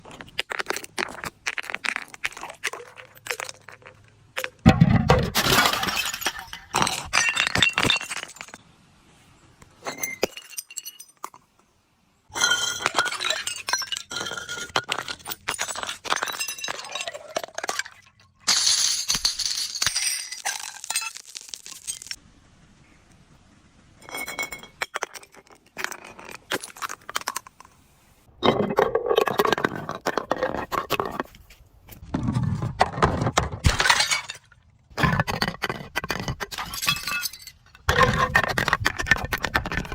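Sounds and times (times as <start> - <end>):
glass bottles breaking: 4.7 - 8.6, 9.8 - 11.4, 12.3 - 22.2, 33.6 - 35.3, 36.5 - 38.6.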